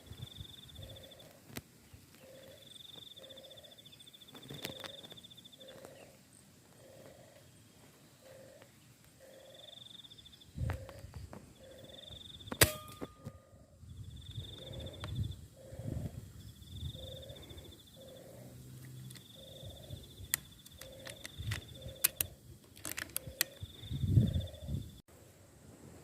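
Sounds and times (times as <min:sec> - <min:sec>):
doves cooing: 0:00.0 - 0:12.4, 0:14.2 - 0:24.9
wind buffeting microphone: 0:10.5 - 0:11.5, 0:13.5 - 0:17.8, 0:19.6 - 0:25.0
sharp metallic crack and ring: 0:12.5 - 0:13.8
faint clicks: 0:18.8 - 0:19.4, 0:20.2 - 0:23.9.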